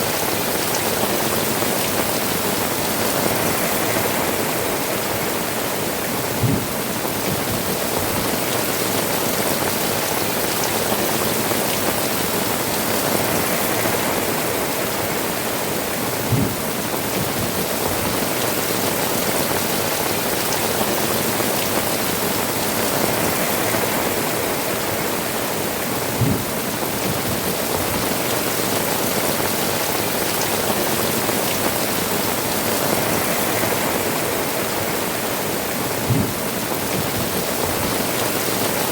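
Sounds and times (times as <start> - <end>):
heavy rain on tiled roofs: 0.0 - 38.9
dull low thud: 6.4 - 6.7, 16.3 - 16.6, 26.2 - 26.5, 36.1 - 36.4
water dripping from eaves: 26.2 - 34.2.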